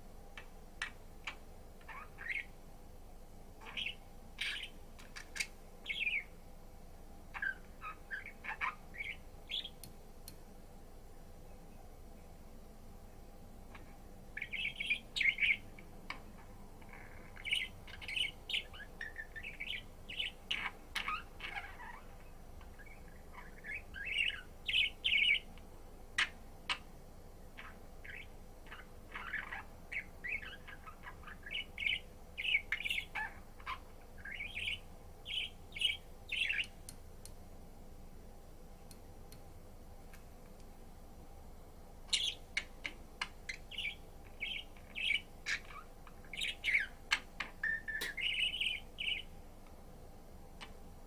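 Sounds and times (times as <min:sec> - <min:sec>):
budgerigar chirping and warbling: 0:00.8 - 0:02.5, 0:03.6 - 0:06.3, 0:07.3 - 0:09.8, 0:14.4 - 0:15.7, 0:16.9 - 0:25.4, 0:27.6 - 0:36.7, 0:42.1 - 0:49.3.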